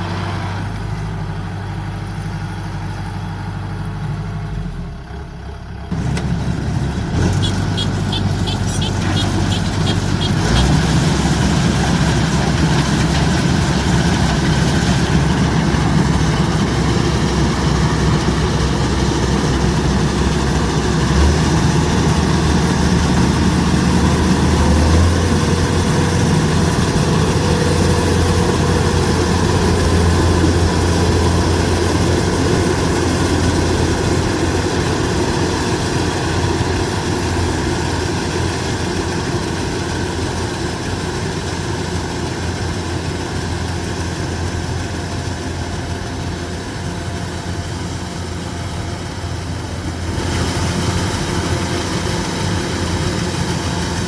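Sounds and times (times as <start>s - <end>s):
combine harvester diesel engine: 0.0s - 54.0s.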